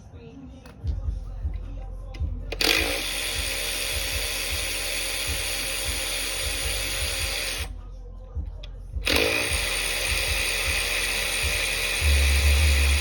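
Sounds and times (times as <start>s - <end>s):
power tool spinning: 2.5s - 7.7s, 9.0s - 13.0s.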